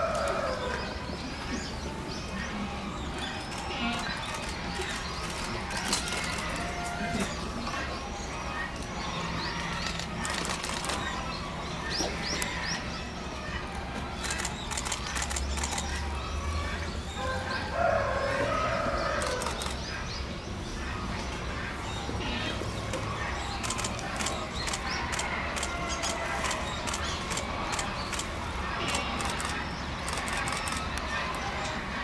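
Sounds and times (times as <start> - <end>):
small birds chirping: 0.0 - 17.2
sharp clicks and flutters: 3.4 - 6.7, 9.6 - 11.3, 14.2 - 16.1, 19.2 - 19.8, 23.6 - 31.5.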